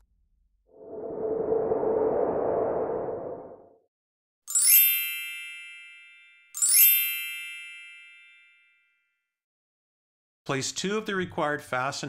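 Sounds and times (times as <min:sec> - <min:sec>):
rushing noise: 0:00.8 - 0:03.7
bright chime: 0:04.5 - 0:08.7.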